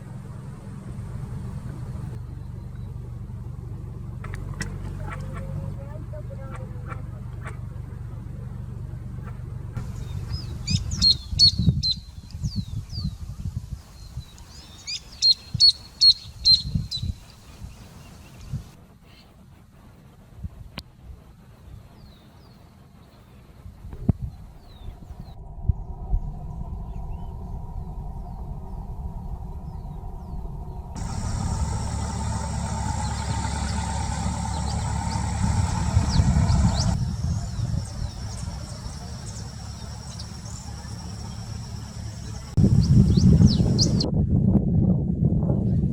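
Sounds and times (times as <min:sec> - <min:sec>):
low rumble: 0:00.0 - 0:14.3, 0:23.6 - 0:45.9
small bird chirping: 0:09.8 - 0:13.2, 0:14.0 - 0:18.6, 0:29.7 - 0:44.1.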